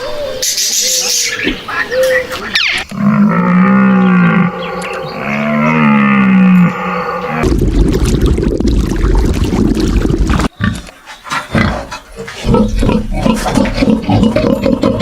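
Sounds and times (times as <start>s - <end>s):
farm animal grunting: 2.9s - 7.4s, 11.5s - 15.0s.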